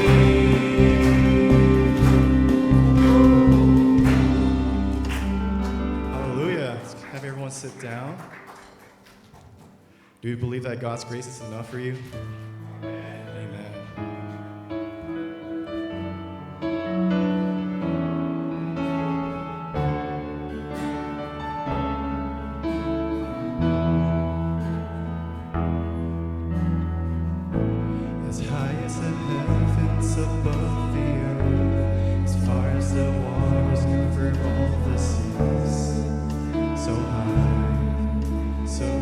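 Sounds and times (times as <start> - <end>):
deep bass line: 0.0 - 7.1, 17.0 - 39.0
held keyboard chords: 0.0 - 10.0, 10.7 - 39.0.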